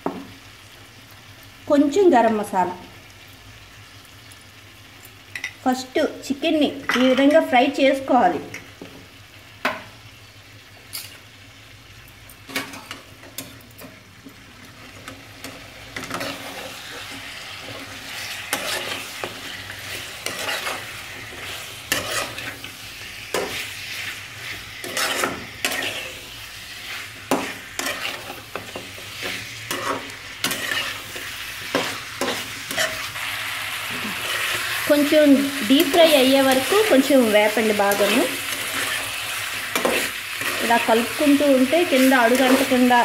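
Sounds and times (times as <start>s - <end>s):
chicken sizzling in oil: 0.0s - 43.0s
spatula scraping and clinking pan: 18.2s - 22.7s, 23.3s - 26.2s, 26.9s - 33.1s.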